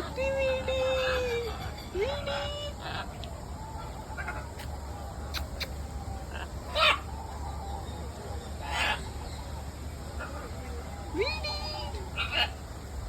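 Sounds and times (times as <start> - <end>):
birds calling: 0.0 - 13.0
steady low hum: 0.0 - 13.0.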